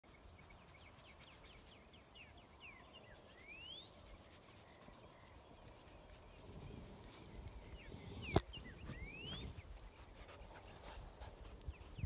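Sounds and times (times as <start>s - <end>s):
bird whistles: 8.2s - 9.6s.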